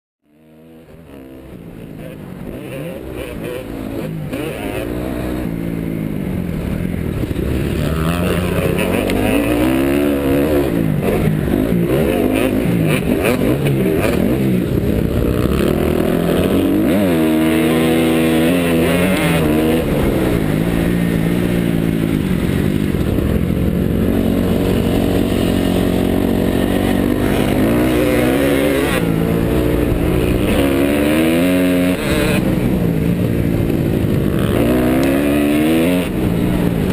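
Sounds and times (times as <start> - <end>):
motorcycle engine revving: 0.2 - 36.9.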